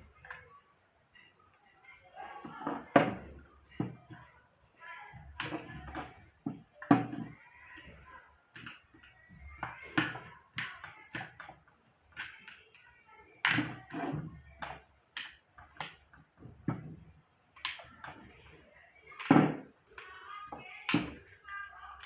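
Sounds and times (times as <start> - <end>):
irregular knocks and taps: 13.4 - 18.4.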